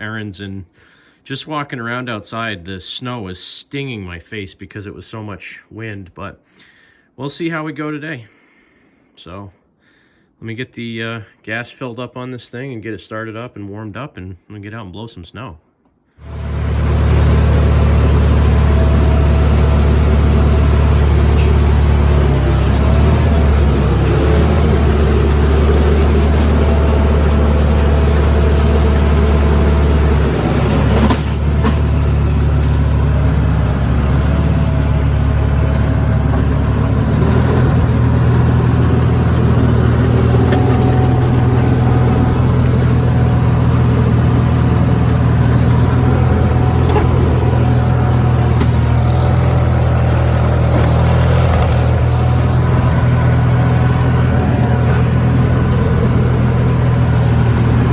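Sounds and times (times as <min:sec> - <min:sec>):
garden tractor engine running: 0:16.2 - 0:57.9.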